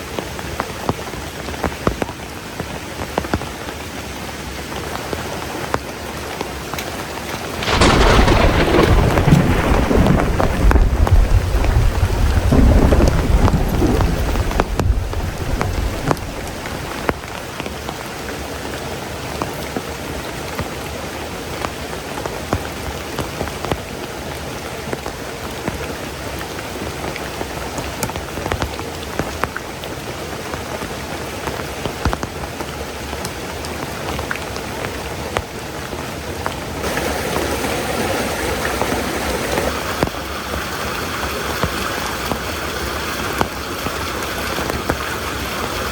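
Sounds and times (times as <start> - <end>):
heavy rain pouring: 0.0 - 45.9
raindrops ticking: 4.7 - 18.4
thunder rumbling: 7.4 - 17.6.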